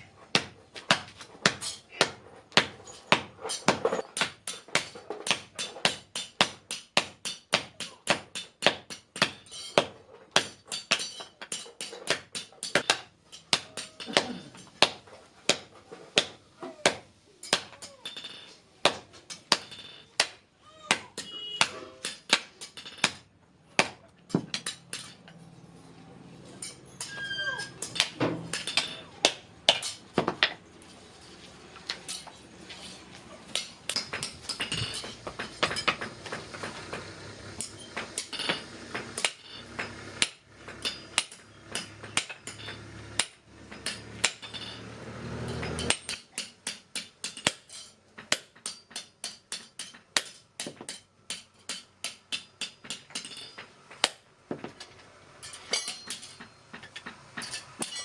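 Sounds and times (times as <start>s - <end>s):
hammer striking metal: 0.3s - 25.4s, 26.6s - 30.6s, 33.5s - 37.0s, 37.6s - 54.2s, 54.8s - 58.0s.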